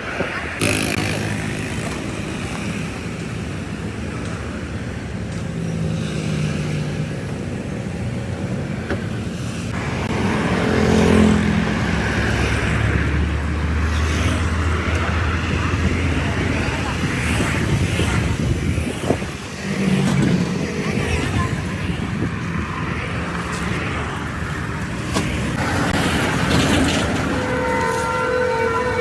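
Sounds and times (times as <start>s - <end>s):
road traffic engines: 0.0s - 29.0s
vehicle passing close: 9.7s - 29.0s.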